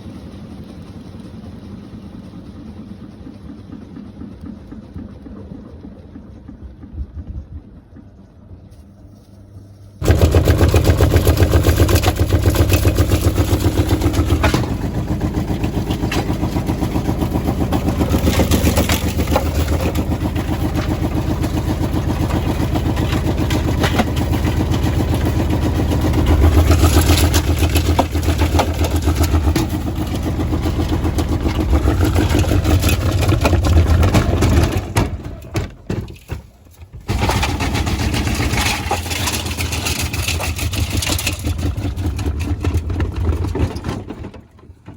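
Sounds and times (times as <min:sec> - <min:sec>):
washing machine drum spinning: 0:10.0 - 0:43.8.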